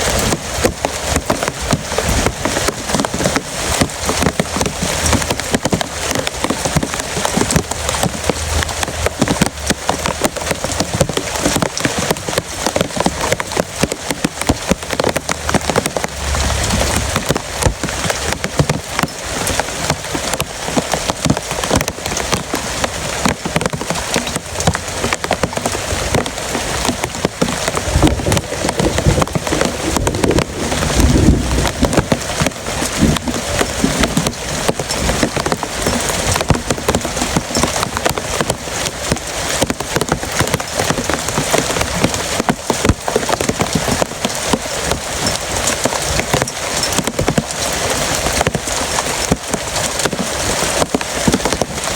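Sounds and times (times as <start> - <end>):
heavy rain falling: 0.0 - 51.9
low rumble: 27.8 - 34.0.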